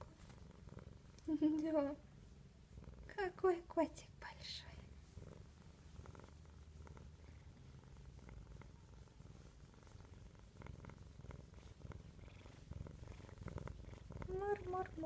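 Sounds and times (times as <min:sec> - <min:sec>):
cat purring: 0:00.0 - 0:15.0
faint clicks: 0:01.1 - 0:01.7.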